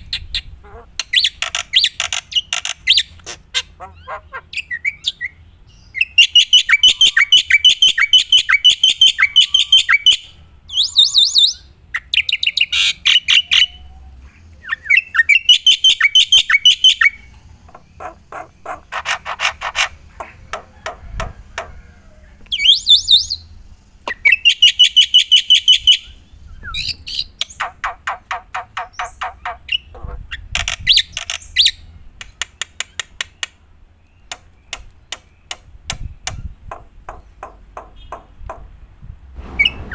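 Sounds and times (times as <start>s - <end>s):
harsh squawk-like bird notes: 0.6s - 23.5s.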